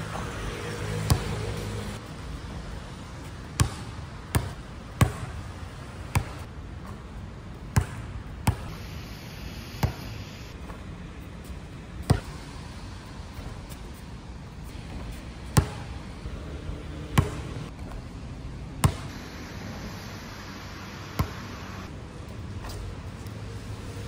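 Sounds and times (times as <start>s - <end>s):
basketball bouncing on hard court: 1.1s - 1.3s, 3.6s - 5.4s, 6.1s - 7.0s, 7.7s - 8.7s, 9.8s - 10.1s, 15.5s - 15.9s, 17.1s - 17.6s, 18.8s - 19.2s, 21.2s - 21.4s
rain hissing: 19.1s - 21.9s.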